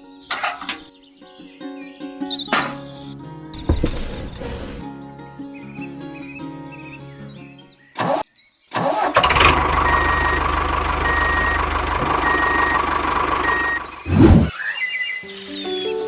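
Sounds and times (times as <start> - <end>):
vehicle engine running: 3.6 - 4.8, 9.2 - 14.5
high beeps: 11.0 - 14.5.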